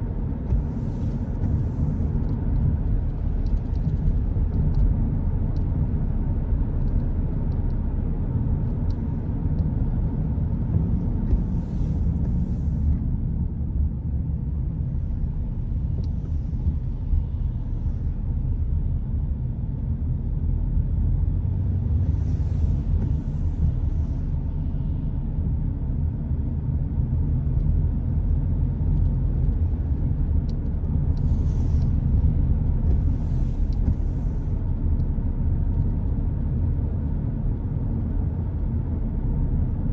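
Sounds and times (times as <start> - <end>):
car road rumble: 0.0 - 39.9.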